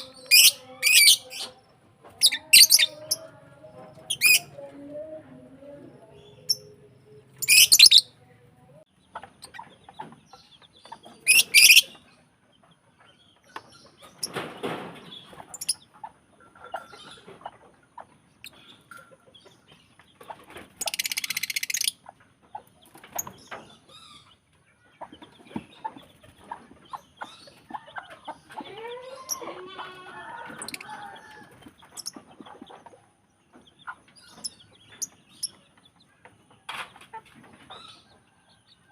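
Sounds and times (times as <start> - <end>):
lovebirds screeching: 0.0 - 3.3, 4.0 - 4.5, 6.2 - 8.1, 9.4 - 12.1, 20.7 - 22.1, 26.9 - 32.7.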